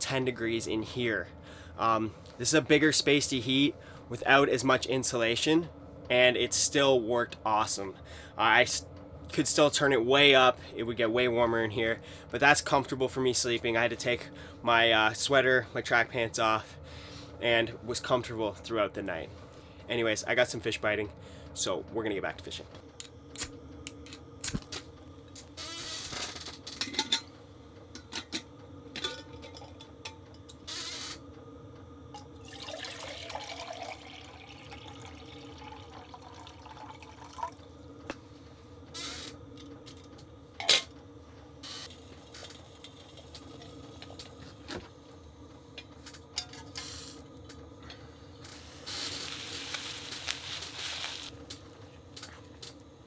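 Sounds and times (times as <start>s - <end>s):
diesel heater humming: 0.0s - 4.6s, 22.9s - 53.0s.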